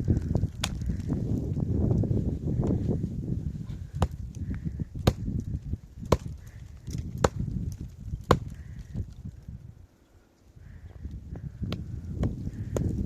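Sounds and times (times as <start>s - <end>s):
chopping blows on wood: 0.6s - 1.0s, 4.0s - 4.2s, 5.0s - 5.3s, 6.0s - 6.4s, 7.2s - 7.5s, 8.2s - 8.6s.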